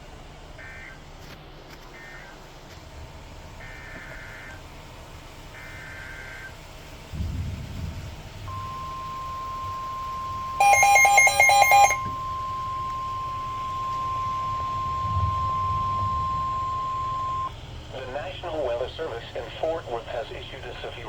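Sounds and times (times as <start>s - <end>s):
rapid warbling beeps: 8.5s - 17.5s
steady high alarm tone: 8.5s - 17.5s.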